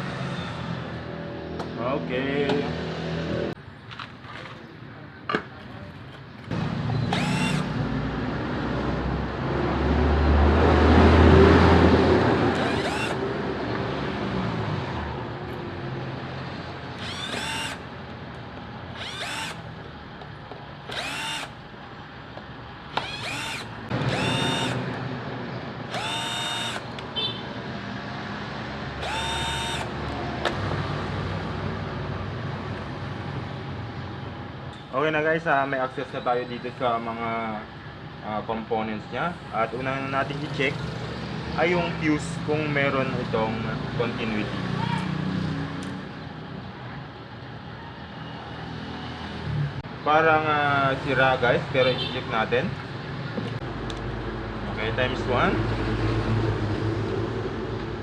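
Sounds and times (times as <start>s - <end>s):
power drill whirring: 7.1s - 7.8s, 12.5s - 13.2s, 17.0s - 17.9s, 18.9s - 19.7s, 20.9s - 21.6s, 22.9s - 24.9s, 25.9s - 26.9s, 29.0s - 30.1s.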